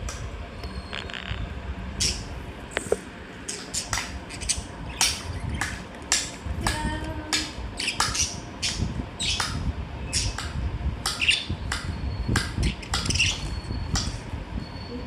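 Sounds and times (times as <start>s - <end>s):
low background rumble: 0.0s - 15.0s
pet birds squawking: 2.0s - 2.3s, 3.4s - 6.4s, 7.7s - 10.5s, 11.1s - 14.2s.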